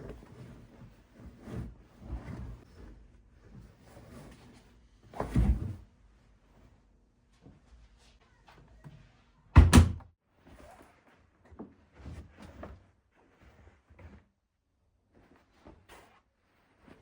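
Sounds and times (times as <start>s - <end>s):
rustling of things handled: 10.3s - 17.0s.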